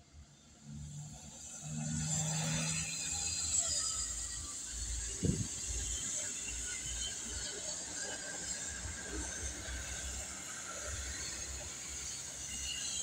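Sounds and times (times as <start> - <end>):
train wheels rumbling on rail: 1.1 - 13.0.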